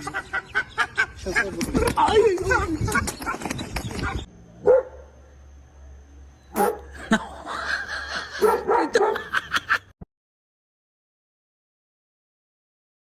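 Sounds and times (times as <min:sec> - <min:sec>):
dog barking and yipping: 0:04.6 - 0:05.1, 0:06.5 - 0:07.0, 0:08.4 - 0:09.4.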